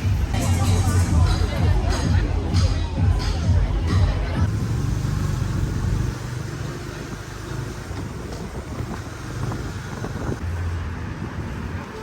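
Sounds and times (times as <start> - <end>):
vehicle traffic rumble: 0.0 - 12.0
road noise hiss: 4.4 - 12.0.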